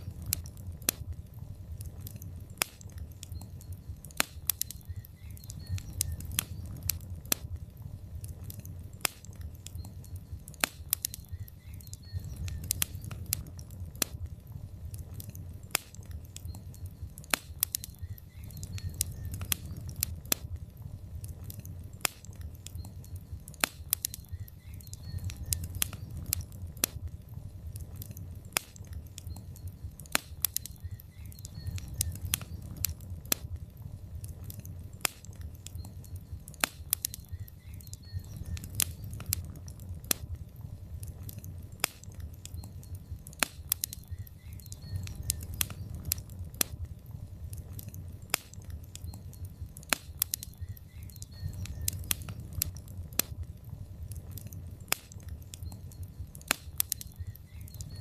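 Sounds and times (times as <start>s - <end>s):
low rumble of flame: 0.0s - 58.0s
wood fire crackling and snapping: 0.0s - 58.0s.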